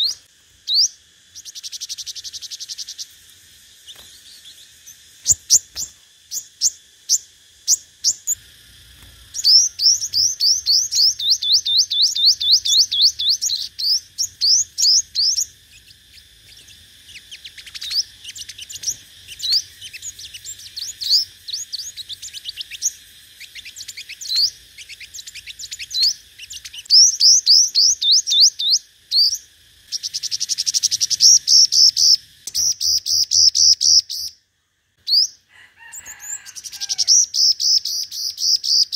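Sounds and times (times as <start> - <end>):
sunbird singing high thin notes: 9.0 - 34.3.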